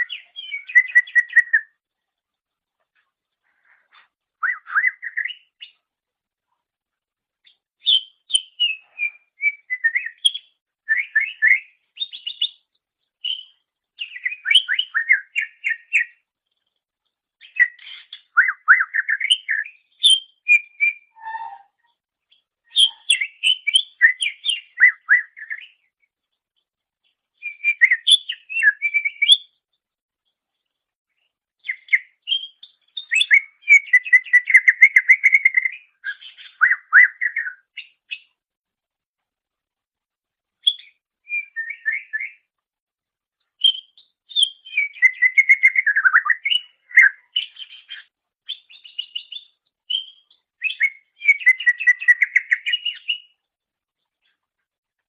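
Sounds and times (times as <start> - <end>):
bird whistling and chattering: 0.0 - 1.7, 4.4 - 5.6, 7.8 - 12.6, 13.2 - 16.2, 17.4 - 21.9, 22.7 - 25.8, 27.4 - 29.5, 31.6 - 38.2, 40.6 - 42.4, 43.6 - 53.4.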